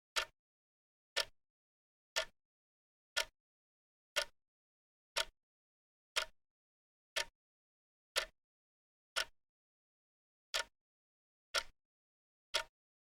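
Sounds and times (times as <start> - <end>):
clock ticking: 8.2 - 8.4, 12.5 - 12.7.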